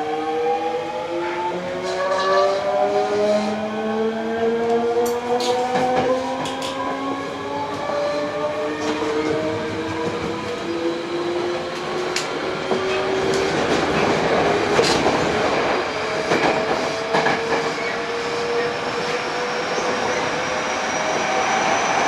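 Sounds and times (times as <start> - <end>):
train inverter and motors whining: 0.0 - 22.0
rail joint clicks: 4.7 - 10.8, 11.5 - 15.5.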